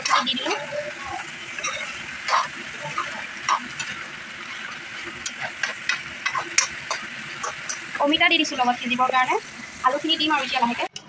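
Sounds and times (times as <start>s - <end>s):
spoon scraping a pan: 0.0s - 8.1s
food sizzling in hot oil: 0.0s - 11.0s.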